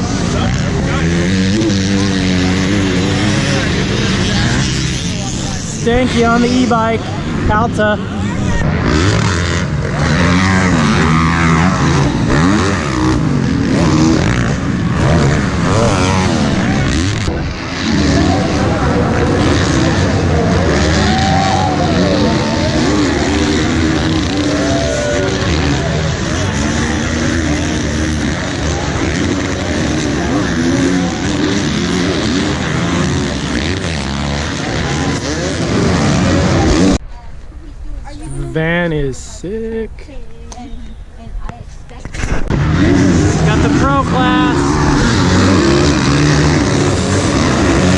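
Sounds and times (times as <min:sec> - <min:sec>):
motocross bike engines revving: 0:00.0 - 0:37.1, 0:37.9 - 0:47.9.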